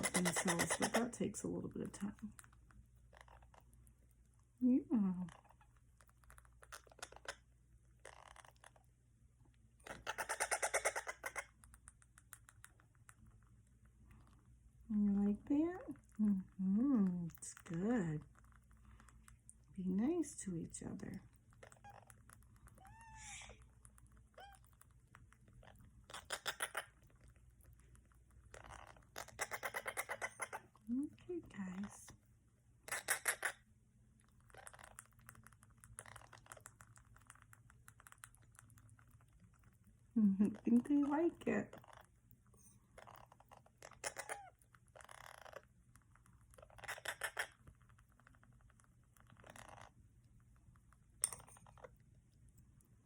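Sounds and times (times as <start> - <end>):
parakeet chick chirp: 0.0 - 1.2, 9.8 - 11.6, 22.8 - 23.7, 24.3 - 24.7, 26.0 - 27.0, 28.5 - 30.7, 32.8 - 33.6, 43.0 - 45.6, 46.6 - 47.6
parakeet chicks chattering: 0.0 - 3.8, 4.8 - 8.9, 9.8 - 13.4, 19.7 - 32.1, 32.8 - 33.7, 34.4 - 38.4, 42.9 - 45.7, 46.5 - 47.9, 49.3 - 50.0
beak clicks and smacks: 5.2 - 8.9, 9.5 - 14.8, 15.5 - 30.9, 32.8 - 41.1, 41.7 - 53.0.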